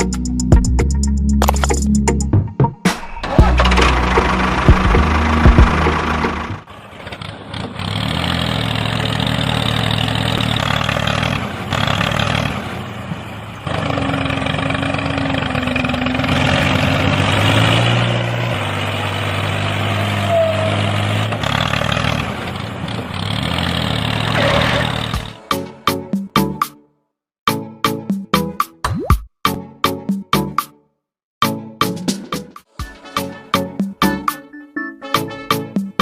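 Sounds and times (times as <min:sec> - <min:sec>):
engine running: 0:02.9 - 0:25.7.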